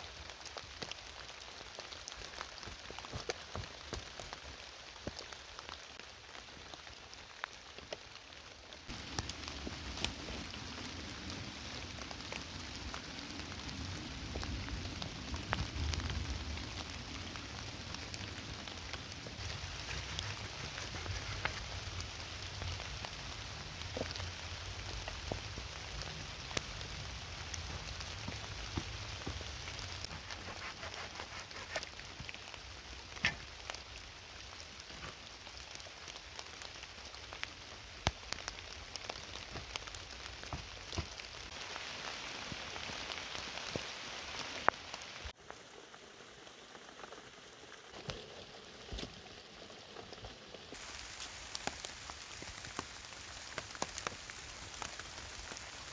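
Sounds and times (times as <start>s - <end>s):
raindrops ticking: 0.0s - 30.3s, 31.9s - 55.9s
heavy rain falling: 0.0s - 30.7s, 31.6s - 55.9s.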